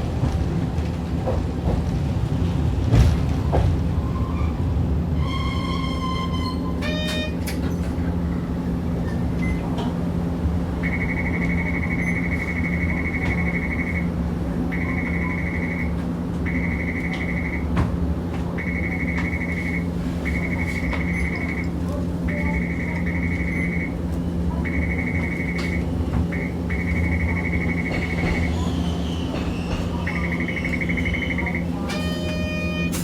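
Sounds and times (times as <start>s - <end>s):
streetcar humming and rumbling: 0.0s - 33.0s
high beeping tone: 10.8s - 17.7s, 18.6s - 24.0s, 24.6s - 28.5s, 30.0s - 33.0s.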